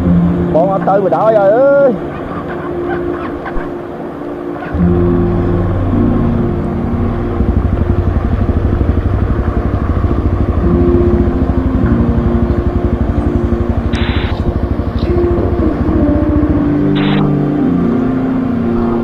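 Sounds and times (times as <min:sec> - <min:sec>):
motorcycle engine running: 0:04.7 - 0:18.0.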